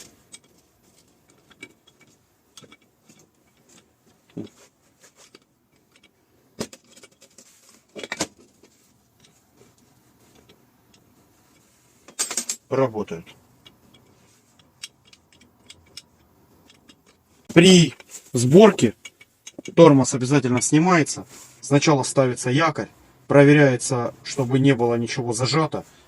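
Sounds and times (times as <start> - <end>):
metallic clicks and knocks: 0.0 - 9.4, 10.3 - 20.8.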